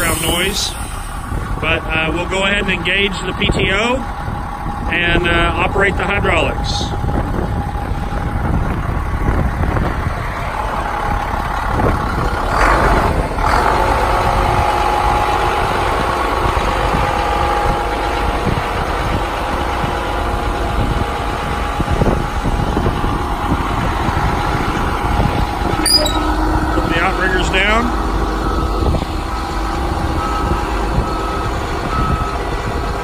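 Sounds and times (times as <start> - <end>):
hydraulic pump whine: 0.0 - 2.8, 20.8 - 33.0
diesel engine idling: 0.0 - 33.0
wind buffeting microphone: 0.0 - 33.0.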